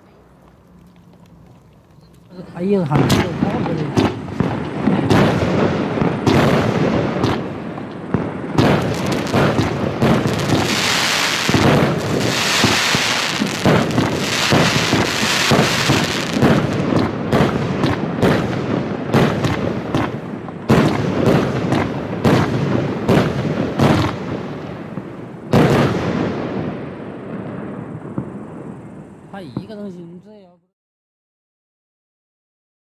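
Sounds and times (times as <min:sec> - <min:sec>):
firework bangs: 0:02.4 - 0:30.0
dense hiss: 0:08.6 - 0:17.0.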